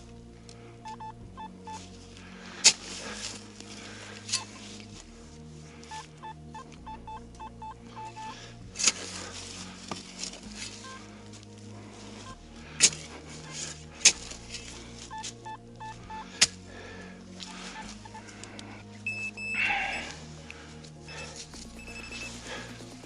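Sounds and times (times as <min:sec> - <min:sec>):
metal detector beeps: 0:05.9 - 0:08.3, 0:15.1 - 0:16.2, 0:19.1 - 0:19.9, 0:21.8 - 0:22.3.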